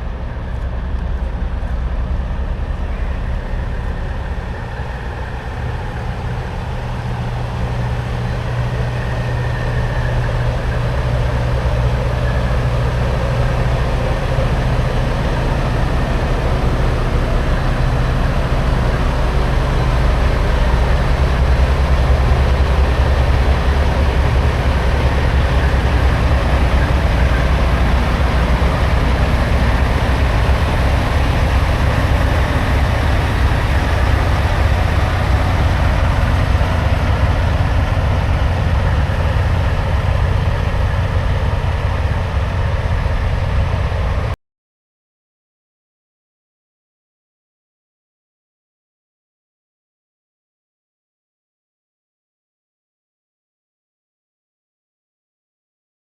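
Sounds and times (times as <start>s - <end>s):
truck diesel engine droning: 0.0s - 44.4s.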